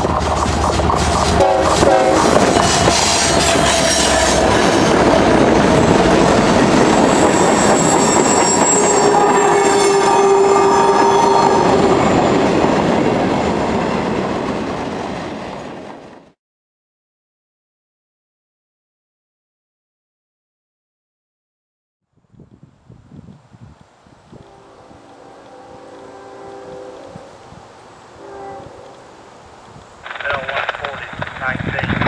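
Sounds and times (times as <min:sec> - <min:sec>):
diesel locomotive passing: 0:00.0 - 0:16.4, 0:23.2 - 0:32.0
drawn-out ringing tones: 0:06.6 - 0:12.3.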